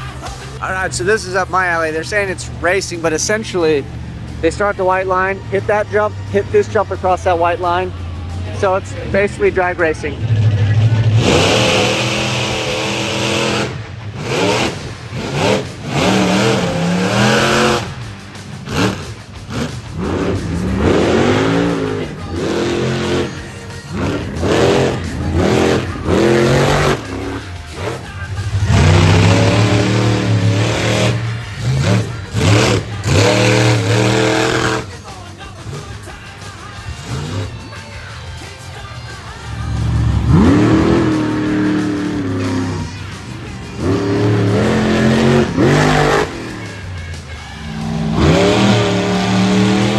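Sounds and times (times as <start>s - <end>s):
truck engines revving hard: 0.0s - 49.9s.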